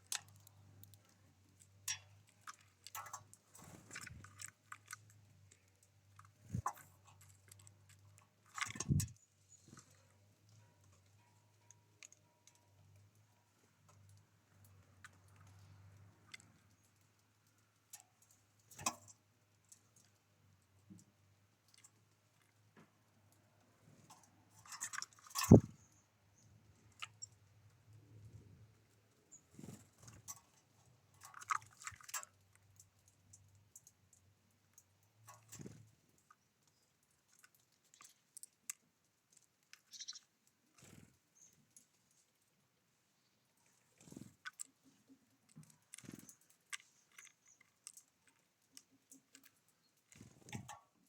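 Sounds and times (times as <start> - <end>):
birds pecking and cracking seeds: 0.0 - 51.0
high bird chirp: 39.9 - 40.2.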